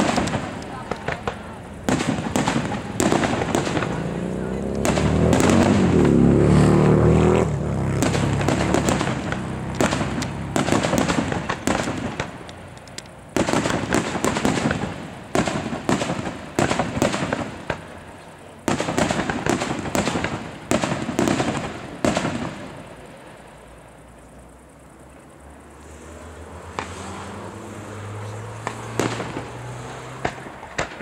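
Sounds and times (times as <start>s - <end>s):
firework shells bursting: 0.0s - 6.7s, 7.4s - 23.2s, 28.5s - 31.0s
firework crackle: 0.0s - 31.0s.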